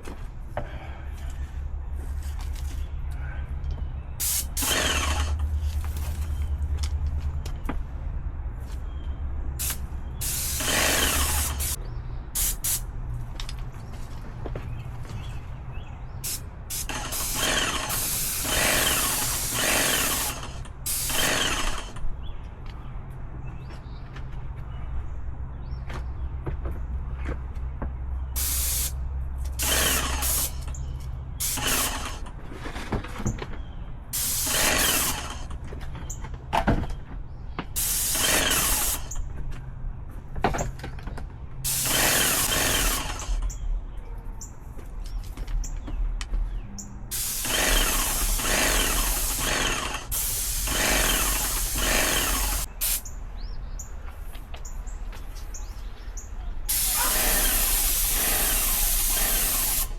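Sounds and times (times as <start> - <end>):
paint sprayer hissing: 4.2 - 5.5, 9.6 - 11.8, 12.4 - 12.8, 16.2 - 22.0, 28.4 - 30.8, 31.4 - 32.2, 34.2 - 35.5, 37.8 - 39.2, 41.7 - 43.4, 47.1 - 53.1, 56.7 - 59.9.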